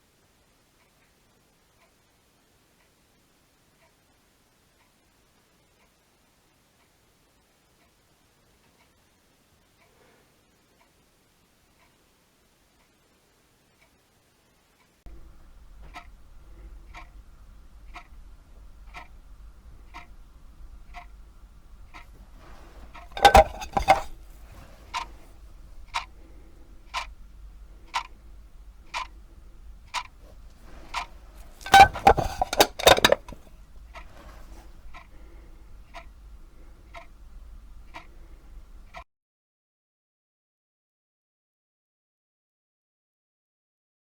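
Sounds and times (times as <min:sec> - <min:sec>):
clock ticking: 0:00.7 - 0:09.9, 0:12.7 - 0:39.0
plastic case clattering: 0:22.4 - 0:25.2, 0:30.2 - 0:34.7.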